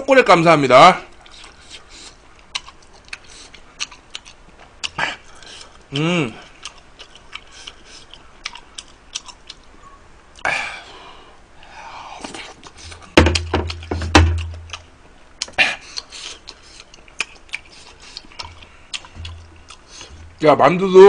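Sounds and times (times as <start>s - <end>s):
person chewing: 1.1s - 10.5s, 12.0s - 20.5s
loud knocks with deep thud: 13.2s - 14.4s.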